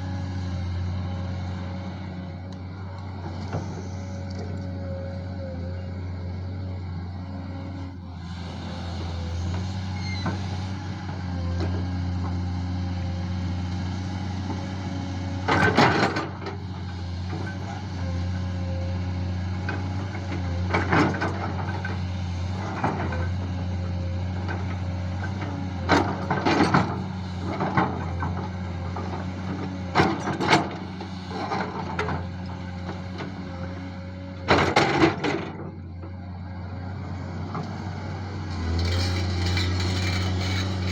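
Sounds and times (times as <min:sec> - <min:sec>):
digger diesel engine running: 0:00.0 - 0:40.9
digger bucket clanking and scraping: 0:00.3 - 0:40.9.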